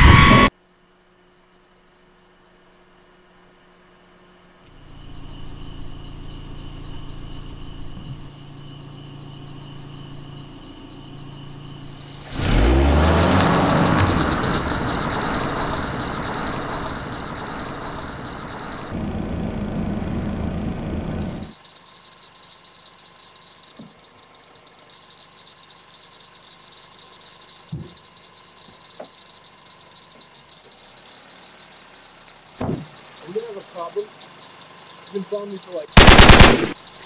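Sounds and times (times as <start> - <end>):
car engine idling: 4.7 - 21.6, 29.3 - 37.0
engine rush with falling pitch: 4.7 - 21.6.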